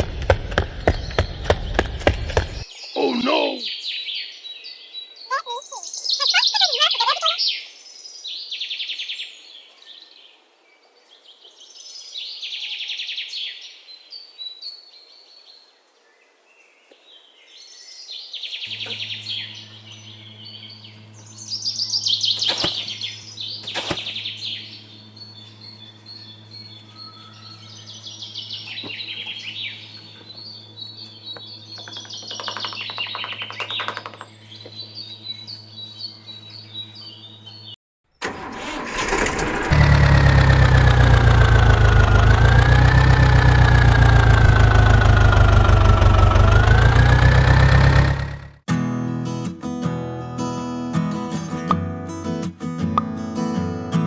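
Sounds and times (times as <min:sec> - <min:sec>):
steady low hum: 0:00.0 - 0:03.6, 0:18.7 - 0:32.0
small birds chirping: 0:00.0 - 0:12.7, 0:13.3 - 0:37.8, 0:40.6 - 0:48.4.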